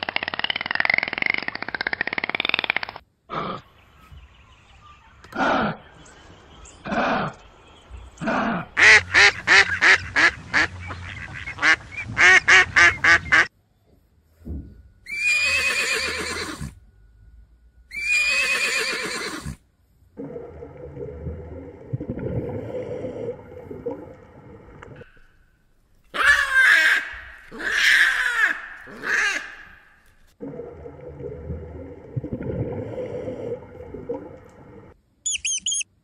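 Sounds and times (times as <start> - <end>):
duck quacking: 8.8 - 13.5, 26.2 - 29.8
horse whinnying: 15.1 - 16.8, 17.9 - 19.6
steady hum: 16.1 - 18.2.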